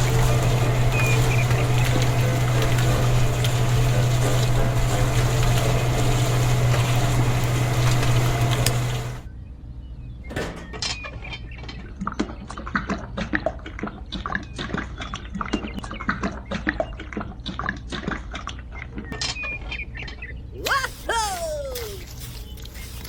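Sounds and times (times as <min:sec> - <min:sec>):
steady low hum: 0:00.0 - 0:10.7
small hard objects clinking: 0:21.8 - 0:23.0.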